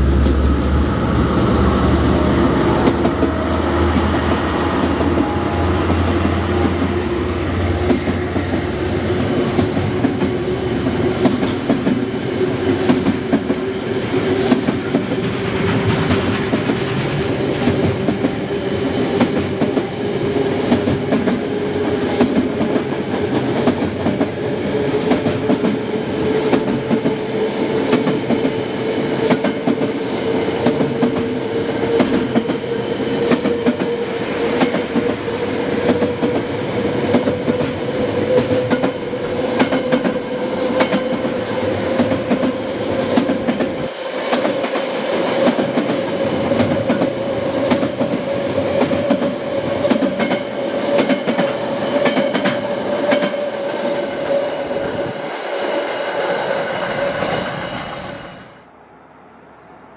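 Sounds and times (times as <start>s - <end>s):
steady rising tone: 0.0s - 9.6s
freight train rolling past: 0.0s - 59.9s.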